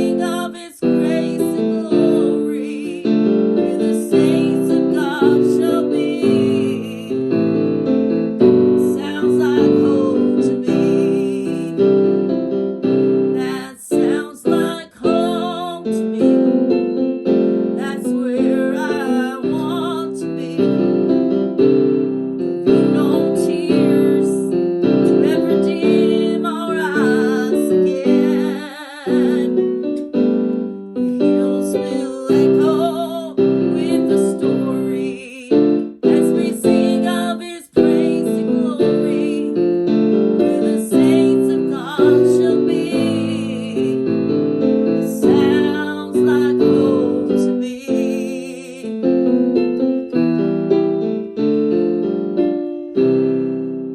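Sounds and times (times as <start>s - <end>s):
woman singing with vibrato: 0.0s - 7.2s, 8.6s - 11.8s, 13.4s - 16.6s, 17.8s - 20.9s, 22.7s - 29.8s, 31.1s - 39.6s, 40.4s - 44.1s, 45.0s - 49.0s
piano playing: 0.0s - 53.9s.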